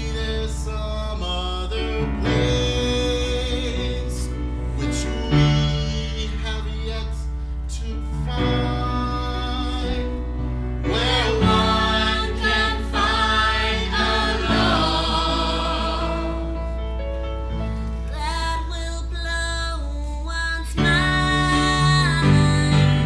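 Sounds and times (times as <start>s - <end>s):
voices singing a duet: 10.8s - 16.7s.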